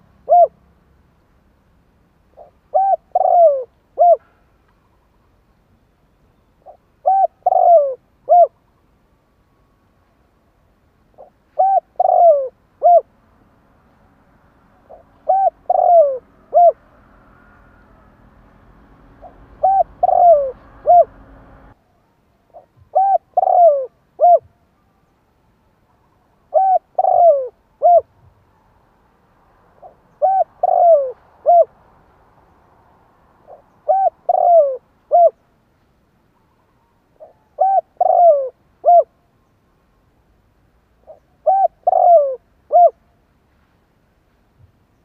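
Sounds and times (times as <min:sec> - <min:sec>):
dove cooing: 0:00.0 - 0:00.6, 0:02.3 - 0:04.4, 0:06.6 - 0:08.6, 0:11.2 - 0:13.1, 0:14.8 - 0:18.1, 0:19.0 - 0:21.7, 0:22.5 - 0:24.5, 0:26.5 - 0:28.2, 0:29.8 - 0:31.8, 0:33.4 - 0:35.4, 0:36.6 - 0:39.2, 0:41.0 - 0:43.0.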